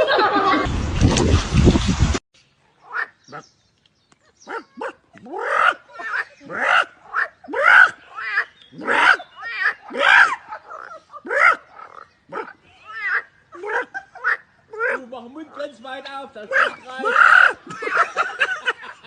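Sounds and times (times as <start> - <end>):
dog barking: 4.5 - 5.0.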